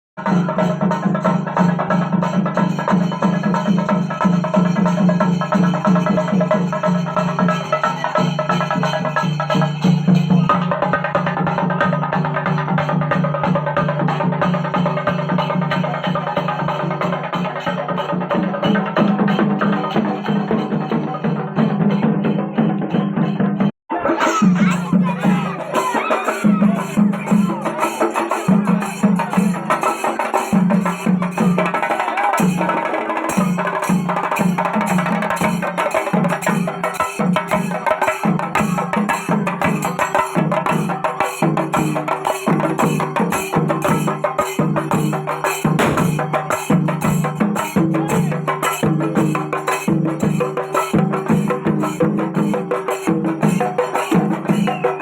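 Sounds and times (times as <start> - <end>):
drums in fast rhythm: 0.2 - 55.0
metal hand cymbals: 24.5 - 31.8.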